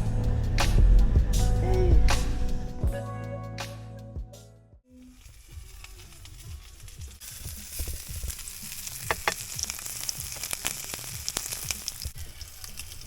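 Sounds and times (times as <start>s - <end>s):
crackling hiss: 5.0s - 13.0s.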